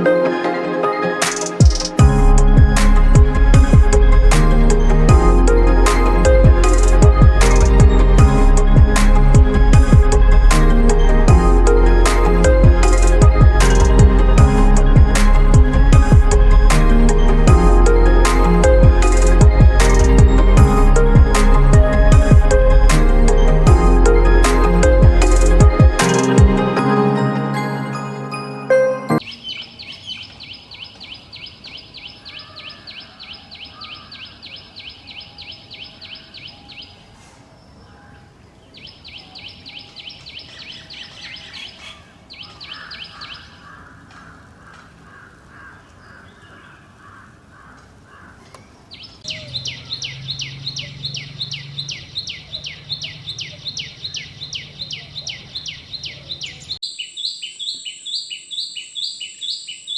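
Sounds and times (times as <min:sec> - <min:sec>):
bird chirping: 0:29.2 - 0:44.1, 0:48.4 - 0:59.9.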